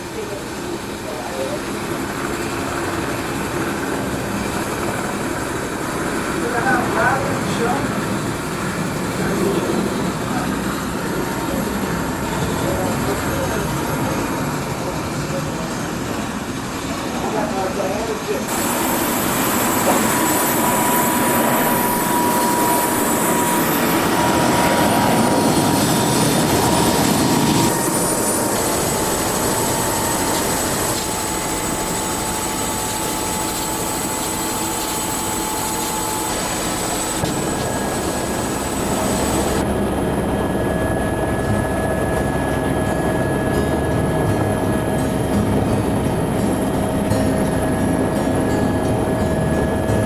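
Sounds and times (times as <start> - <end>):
faint high whine: 0.0 - 50.0
vehicle running noise: 41.2 - 50.0.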